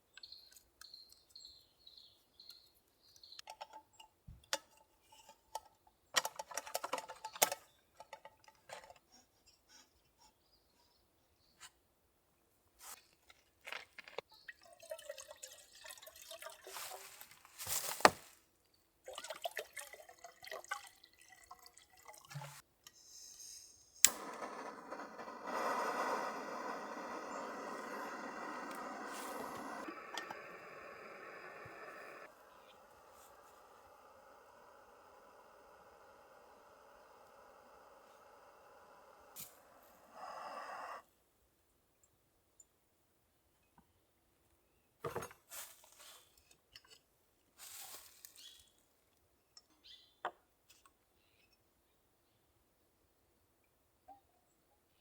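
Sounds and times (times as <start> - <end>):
steady rushing hiss: 23.0 - 41.0.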